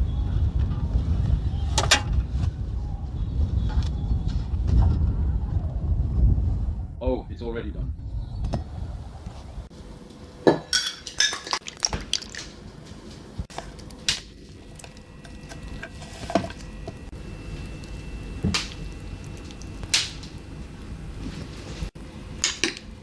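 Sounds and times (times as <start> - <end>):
dishes and utensils clinking: 10.5 - 11.6.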